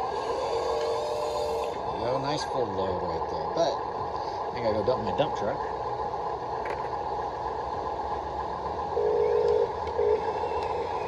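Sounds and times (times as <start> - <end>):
small electric motors whining: 0.0 - 2.4, 9.0 - 11.0
louder motor tone: 8.9 - 11.0.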